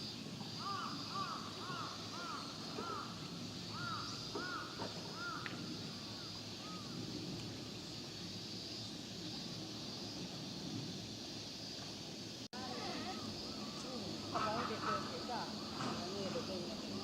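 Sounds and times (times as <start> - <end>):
steady high hiss: 0.0 - 17.0
bird calling: 0.5 - 7.0.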